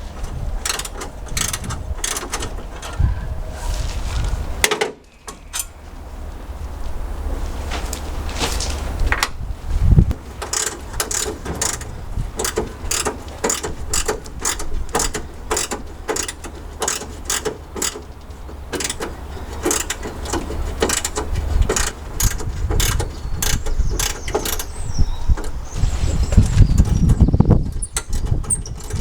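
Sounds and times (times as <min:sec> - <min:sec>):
socket ratchet clicking: 0:00.6 - 0:03.0, 0:10.4 - 0:18.1, 0:18.7 - 0:25.6.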